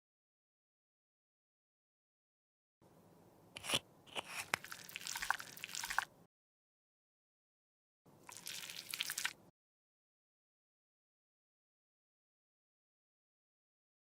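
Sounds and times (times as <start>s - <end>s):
cosmetic product squishing: 3.6s - 6.1s, 8.3s - 9.4s.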